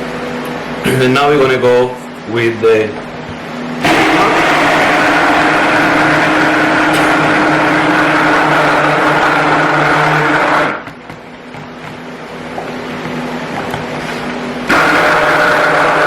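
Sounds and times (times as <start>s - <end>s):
stick blender running: 3.7s - 16.0s.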